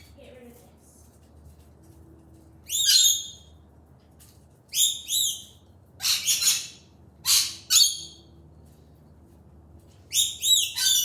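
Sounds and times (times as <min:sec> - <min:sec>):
pet bird chirping: 0:10.1 - 0:11.0.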